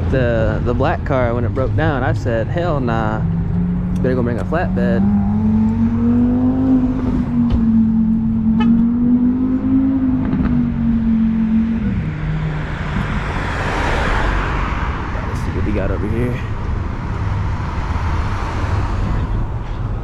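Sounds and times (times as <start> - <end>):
car engine droning: 0.0 - 20.0.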